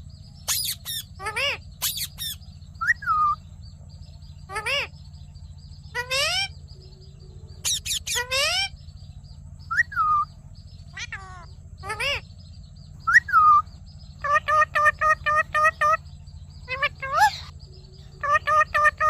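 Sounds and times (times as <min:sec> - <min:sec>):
parrot shrill calls: 0:00.4 - 0:03.4, 0:04.5 - 0:04.9, 0:05.9 - 0:06.6, 0:07.6 - 0:08.8, 0:09.7 - 0:10.3, 0:10.9 - 0:12.2, 0:13.0 - 0:13.6, 0:14.2 - 0:16.0, 0:16.6 - 0:17.5, 0:18.2 - 0:19.0.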